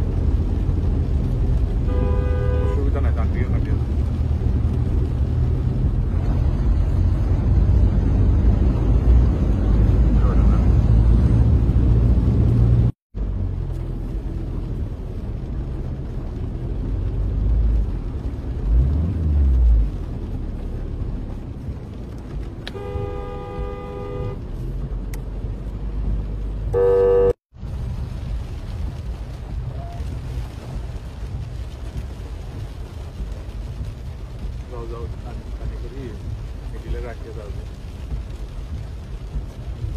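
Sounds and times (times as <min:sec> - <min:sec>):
passing traffic rumble: 0:00.0 - 0:39.9
vehicle horn tooting: 0:01.9 - 0:02.9, 0:22.7 - 0:24.4, 0:26.8 - 0:27.4.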